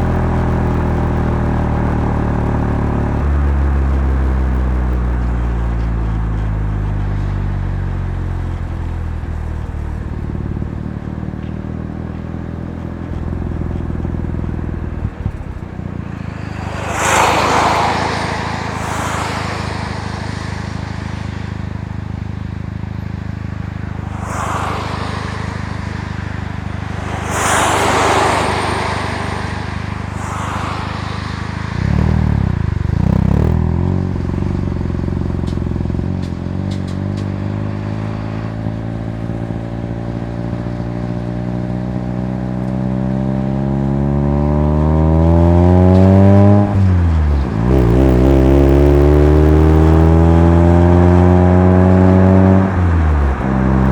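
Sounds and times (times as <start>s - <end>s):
rotary engine while driving: 0.0s - 53.9s
rushing noise: 14.8s - 33.6s.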